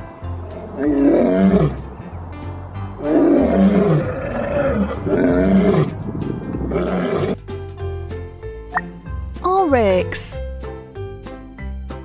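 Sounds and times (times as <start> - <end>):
background music: 0.0 - 12.0
lion roaring: 0.7 - 1.9, 3.0 - 7.4.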